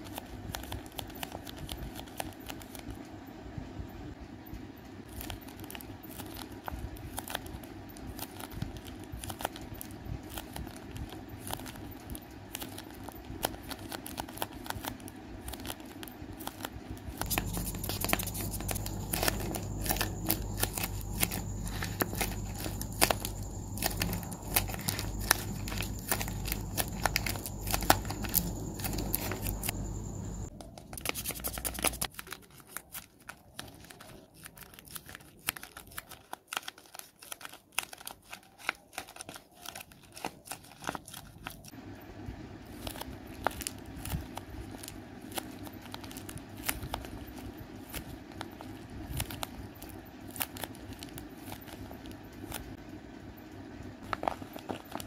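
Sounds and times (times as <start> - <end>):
paper crinkling and crackling: 0.0 - 3.1, 4.9 - 41.8, 42.6 - 55.0
steady low hum: 0.0 - 34.4, 40.6 - 55.0.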